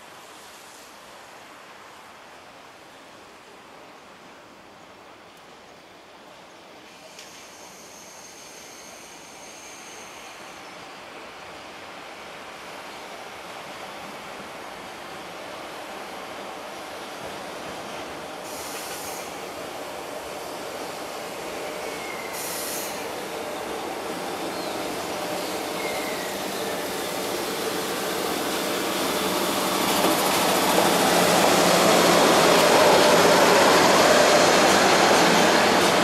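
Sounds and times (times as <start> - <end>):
train wheels rumbling on rails: 13.2 - 36.0.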